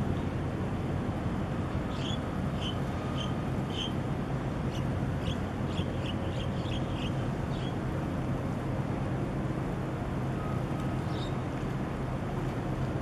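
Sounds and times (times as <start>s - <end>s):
harbour noise: 0.0s - 13.0s
wind: 0.0s - 13.0s
bird chirping: 4.7s - 7.8s.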